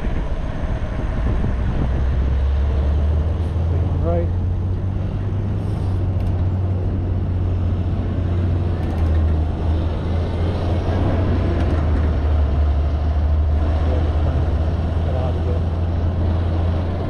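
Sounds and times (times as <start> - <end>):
road noise: 0.0 - 17.0
wind rumble on microphone: 0.0 - 17.0.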